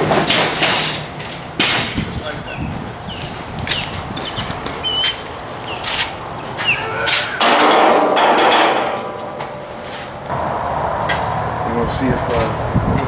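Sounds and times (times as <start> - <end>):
metal rack knocking and clanking: 0.0 - 2.3, 7.1 - 10.3
rushing noise: 0.0 - 13.0.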